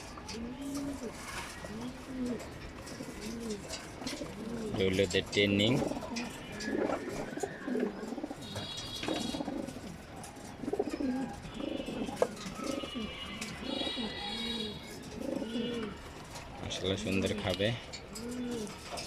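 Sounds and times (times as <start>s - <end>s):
pigeons cooing: 0.0s - 19.0s
pigeon chirps: 6.0s - 9.8s, 10.6s - 16.0s.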